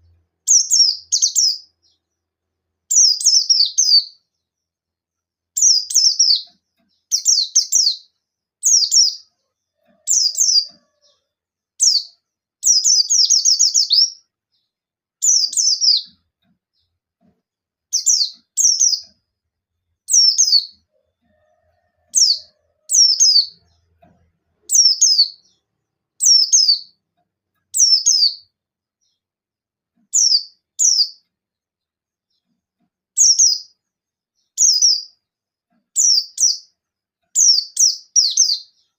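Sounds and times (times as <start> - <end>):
bird rapid chirping calls: 0.5 - 2.0, 2.9 - 4.2, 7.1 - 9.3, 10.0 - 11.0, 11.8 - 14.2, 15.2 - 16.2, 17.9 - 19.2, 20.1 - 20.9, 22.1 - 23.8, 24.7 - 25.6, 26.2 - 27.0, 27.7 - 28.5, 30.1 - 31.2, 33.2 - 33.8, 36.0 - 36.7, 37.4 - 38.9.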